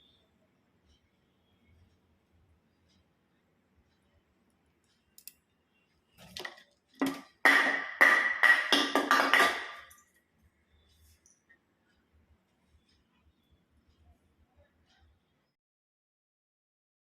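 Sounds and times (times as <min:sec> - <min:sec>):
spoon striking metal bowl: 0:07.0 - 0:10.0.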